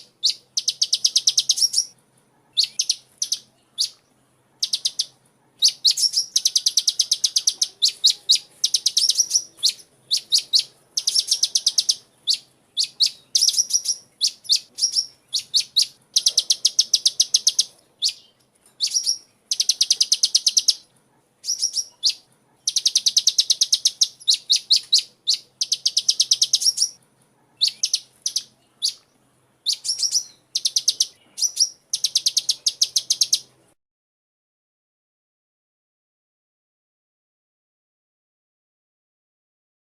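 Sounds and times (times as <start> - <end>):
bird singing high trills: 0.0 - 2.0, 2.6 - 4.0, 4.6 - 20.8, 21.4 - 27.0, 27.6 - 29.0, 29.6 - 33.5.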